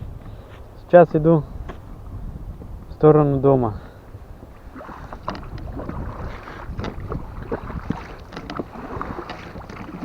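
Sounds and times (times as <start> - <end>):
wind on microphone: 0.0 - 10.0
oars knocking and splashing: 4.0 - 10.0.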